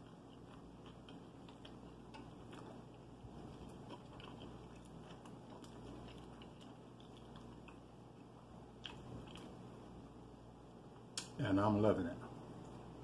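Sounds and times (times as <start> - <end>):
chewing biscuit: 0.0 - 9.6.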